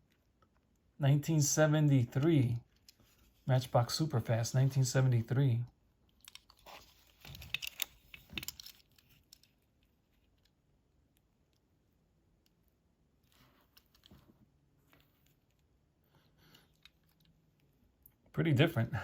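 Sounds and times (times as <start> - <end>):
toy car clicks and rustles: 6.1 - 10.6.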